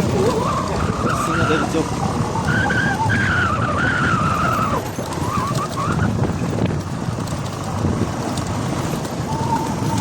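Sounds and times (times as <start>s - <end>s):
short wavering squeals: 0.0s - 6.4s, 9.2s - 10.0s
vehicle engine and road rumble: 0.0s - 10.0s.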